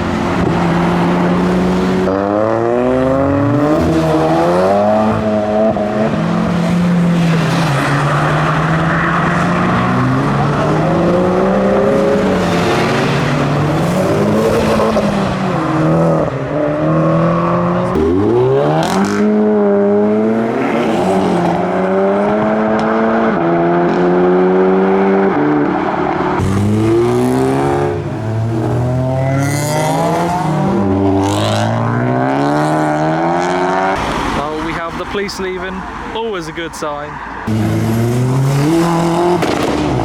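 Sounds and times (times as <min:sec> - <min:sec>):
car engines accelerating: 0:00.0 - 0:40.0.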